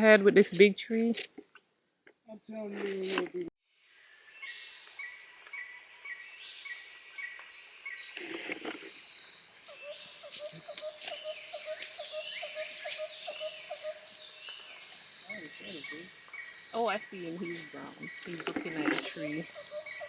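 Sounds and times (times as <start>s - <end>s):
high insect drone: 2.4s - 20.0s
birds chirping: 4.0s - 20.0s.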